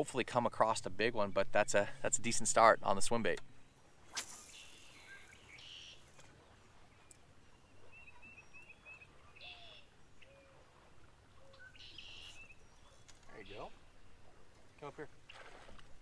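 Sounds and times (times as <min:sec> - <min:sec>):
faint birdsong: 0:01.0 - 0:15.6.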